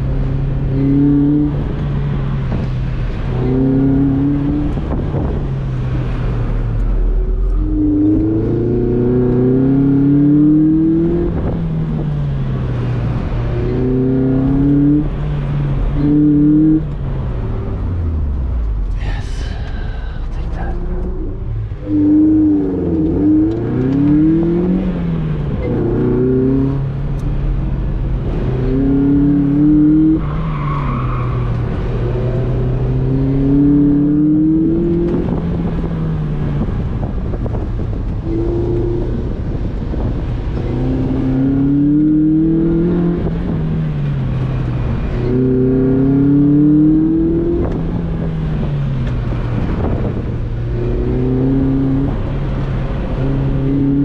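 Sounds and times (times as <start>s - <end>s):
car engine revving: 0.0s - 54.0s
road and wind noise: 0.0s - 54.0s.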